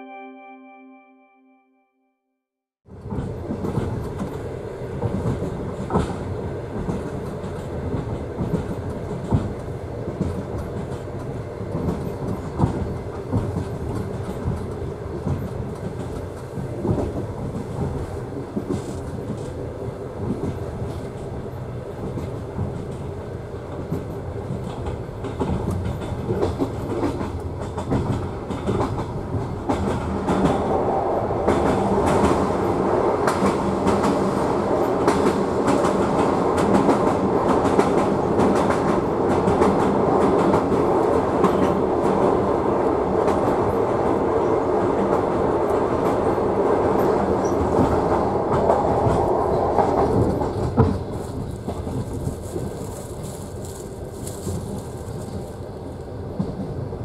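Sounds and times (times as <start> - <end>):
train rumble: 2.9 - 57.0
wheels clicking over rail joints: 47.0 - 56.7.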